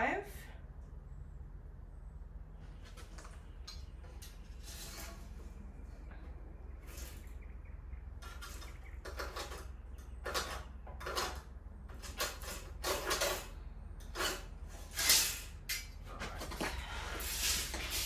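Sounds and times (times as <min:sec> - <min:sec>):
screw scratching timber: 0:08.2 - 0:15.5.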